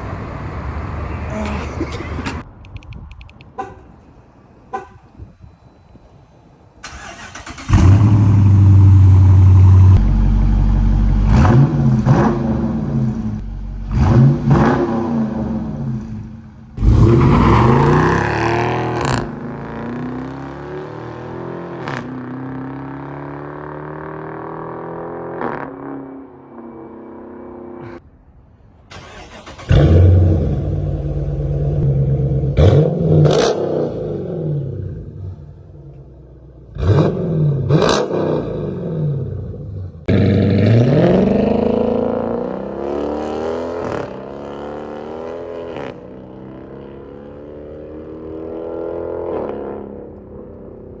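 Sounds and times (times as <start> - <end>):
car engine accelerating: 6.8 - 25.0.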